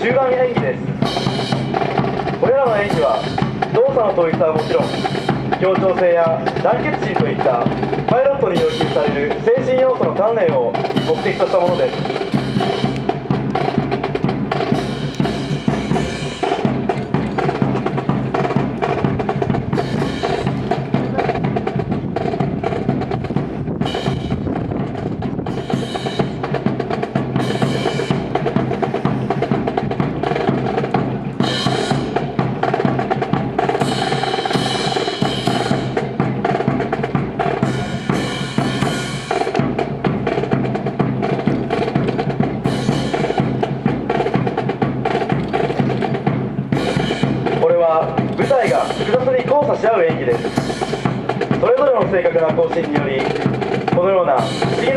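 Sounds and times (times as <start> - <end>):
drum-led music: 0.0 - 54.9.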